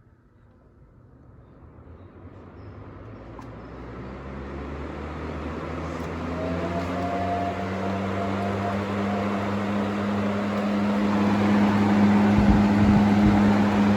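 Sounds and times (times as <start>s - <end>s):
box fan running: 5.5s - 13.9s.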